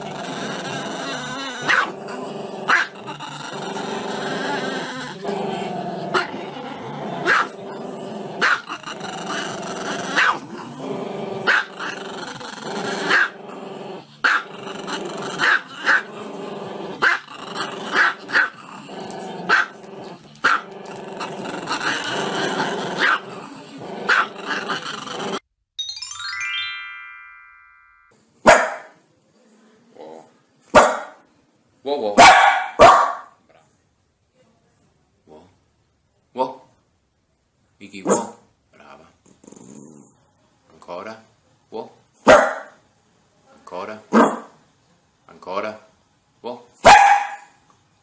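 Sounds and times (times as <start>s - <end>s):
dog barking: 1.7s - 1.9s, 7.2s - 7.6s, 8.4s - 8.6s, 10.2s - 10.4s, 13.1s - 13.3s, 14.2s - 14.4s, 19.5s - 19.7s, 23.0s - 23.2s, 24.1s - 24.3s, 28.4s - 29.0s, 30.7s - 31.2s, 32.2s - 33.4s, 38.0s - 38.4s, 42.2s - 42.8s, 44.1s - 44.6s, 46.8s - 47.6s
chime-like tones: 25.8s - 28.1s.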